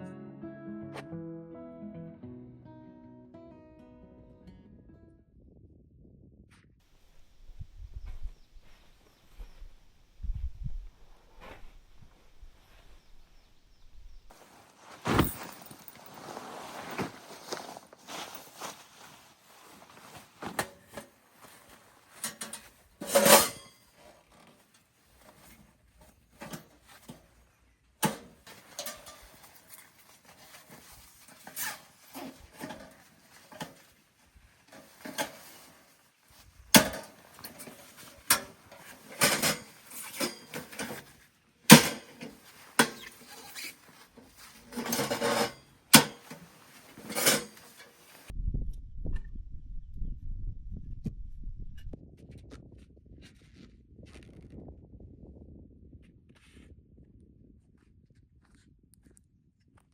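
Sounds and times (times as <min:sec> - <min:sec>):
camping gear clinking and knocking: 0:06.9 - 0:48.3
low rumble: 0:48.3 - 0:57.6.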